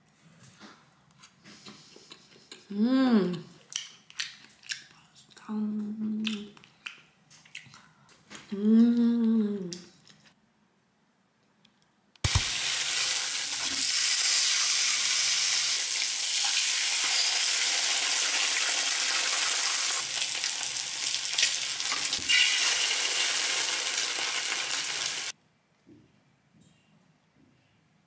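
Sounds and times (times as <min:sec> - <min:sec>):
egg and pork sizzling in a pan: 0:12.3 - 0:25.3.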